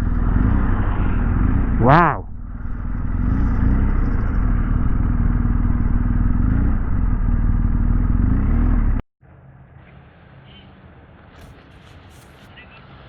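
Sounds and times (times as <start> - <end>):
quiet outdoor background: 0.0 - 8.0
motorcycle cruising: 0.0 - 9.0
wind and road noise: 0.0 - 9.0.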